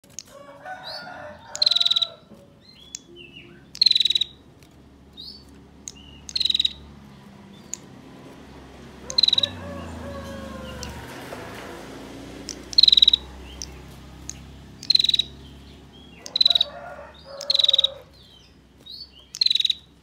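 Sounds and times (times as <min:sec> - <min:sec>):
bird buzzy rattle call: 0:00.2 - 0:02.2, 0:03.7 - 0:04.4, 0:05.2 - 0:06.8, 0:09.0 - 0:11.7, 0:12.4 - 0:18.2, 0:19.3 - 0:19.9.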